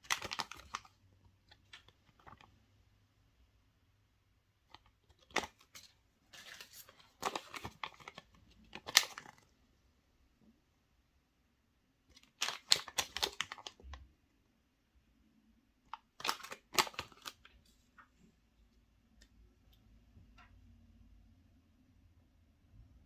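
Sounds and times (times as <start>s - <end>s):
foil wrapper crinkling: 0.0s - 0.9s, 4.8s - 9.4s, 12.3s - 13.8s.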